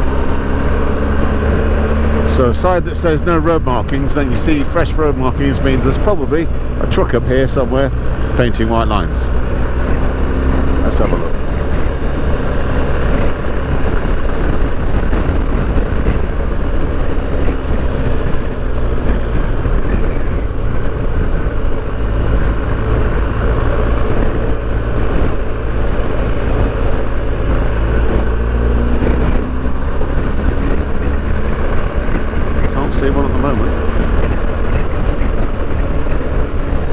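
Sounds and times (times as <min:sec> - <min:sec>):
motorcycle engine running: 0:00.0 - 0:36.9
wind on microphone: 0:07.9 - 0:36.9.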